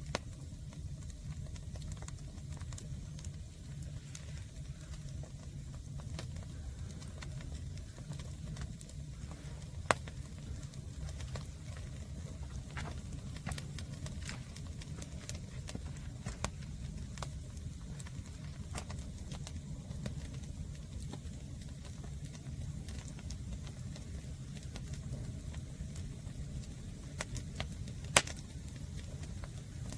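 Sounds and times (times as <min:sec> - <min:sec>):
firewood crackling and popping: 0:00.0 - 0:29.9
low rumble: 0:02.8 - 0:21.9.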